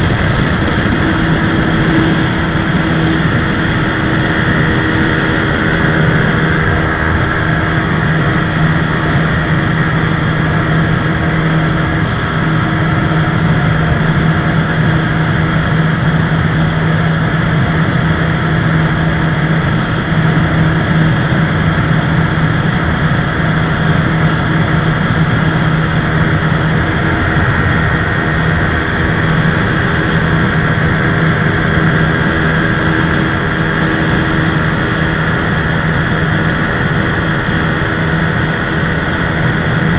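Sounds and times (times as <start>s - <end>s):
loud rushing noise: 0.0s - 39.9s
motorcycle engine running hard: 0.0s - 39.9s.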